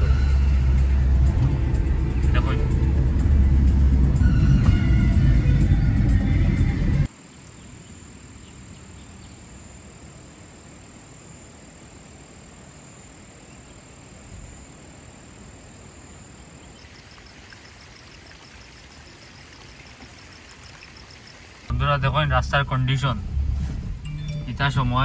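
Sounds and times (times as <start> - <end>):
insect drone: 7.0 - 21.7
rapid insect chirping: 7.0 - 21.7
low steady rumble: 20.2 - 25.0.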